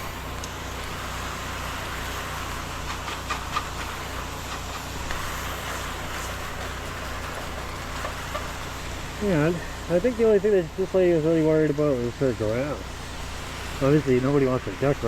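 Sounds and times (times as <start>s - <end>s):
pump humming: 0.0s - 15.0s
spray hissing: 0.0s - 15.0s.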